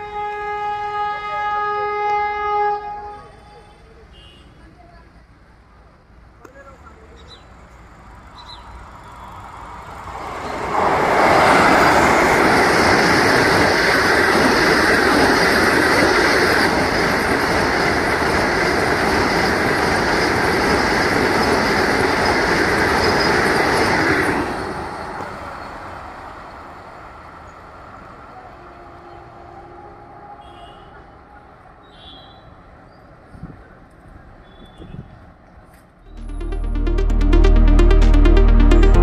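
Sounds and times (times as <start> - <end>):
electric train passing at speed: 4.7 - 31.8.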